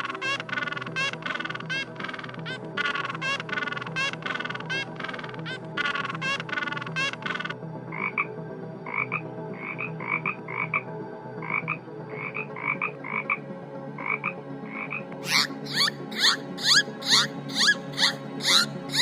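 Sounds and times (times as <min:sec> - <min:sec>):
animal calling loudly: 0:00.0 - 0:04.9, 0:15.2 - 0:19.0
frog croaking: 0:00.0 - 0:08.3, 0:08.9 - 0:10.8, 0:11.4 - 0:13.4, 0:14.0 - 0:19.0.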